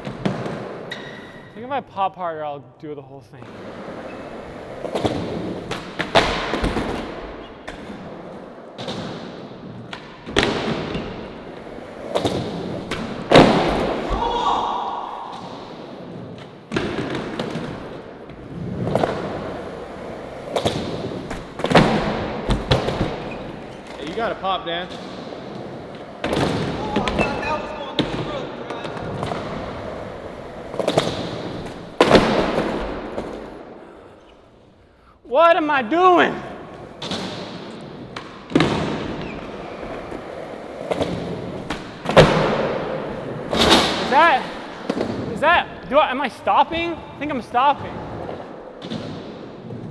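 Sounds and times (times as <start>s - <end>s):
skateboard rolling: 3.4s - 14.4s, 15.4s - 24.4s, 25.0s - 34.2s, 36.6s - 45.3s
skateboard clacks and thuds: 4.4s - 14.4s, 16.7s - 24.4s, 25.0s - 33.6s, 36.9s - 45.3s.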